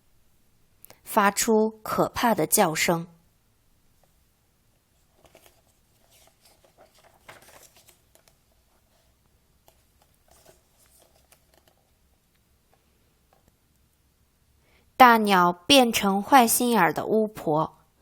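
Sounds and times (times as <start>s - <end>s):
faint clicks and rustles: 4.0s - 13.9s.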